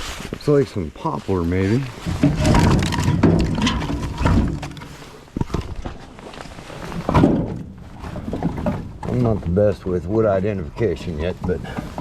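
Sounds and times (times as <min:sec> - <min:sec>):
firewood logs knocking: 0:02.1 - 0:05.9.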